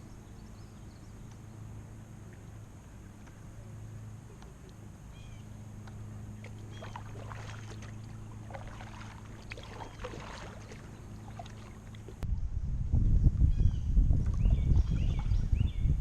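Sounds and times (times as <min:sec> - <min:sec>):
paddle splashes and drips: 0:05.7 - 0:12.2.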